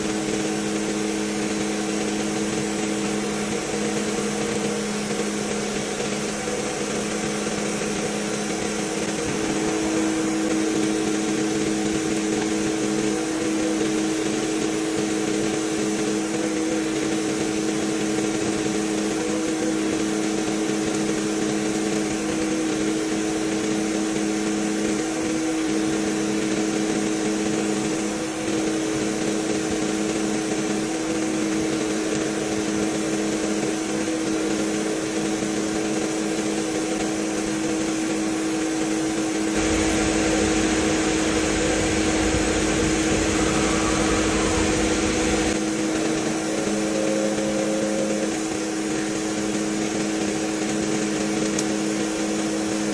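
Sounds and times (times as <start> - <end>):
workshop machine humming: 39.5 - 50.0.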